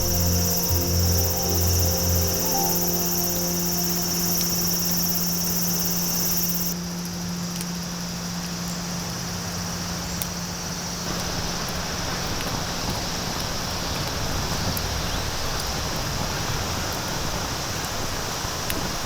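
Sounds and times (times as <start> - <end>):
soft hiss: 0.0 - 6.8
low steady hum: 0.0 - 10.7
insects buzzing: 0.0 - 11.0.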